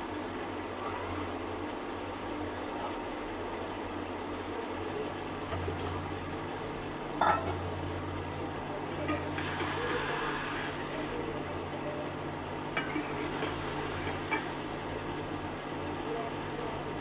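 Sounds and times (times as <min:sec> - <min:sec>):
food sizzling in oil: 0:05.7 - 0:11.3, 0:12.5 - 0:15.5
utensil clinking against pot: 0:07.2 - 0:07.6.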